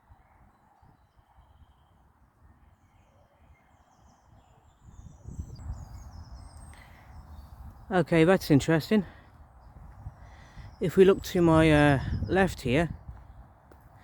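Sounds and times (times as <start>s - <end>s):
faint bird chirps: 0.0s - 7.8s.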